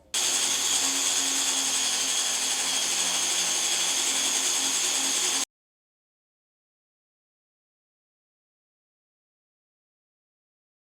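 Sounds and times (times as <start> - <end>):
power tool hissing and whining: 0.0 - 5.4.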